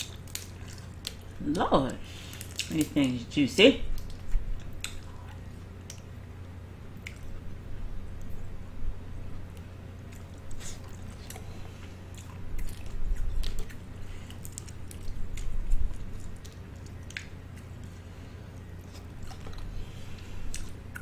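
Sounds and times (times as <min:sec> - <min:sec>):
wet chewing of seafood: 0:00.0 - 0:01.4, 0:10.0 - 0:21.0.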